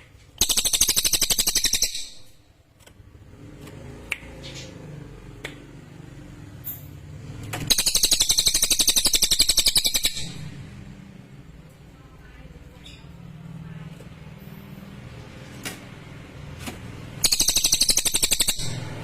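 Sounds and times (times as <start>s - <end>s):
low background hum: 0.0s - 19.0s
songbird rapid high trill: 0.4s - 2.3s, 7.7s - 10.4s, 17.2s - 19.0s.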